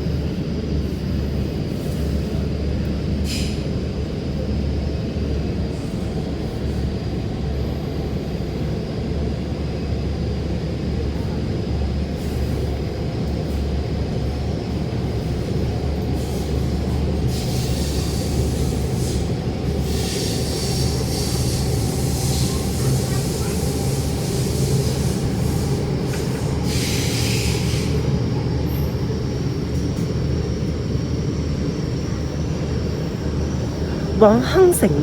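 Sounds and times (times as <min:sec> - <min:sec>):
train wheels rumbling: 0:00.0 - 0:35.0
wheels screeching on rails: 0:15.2 - 0:34.4.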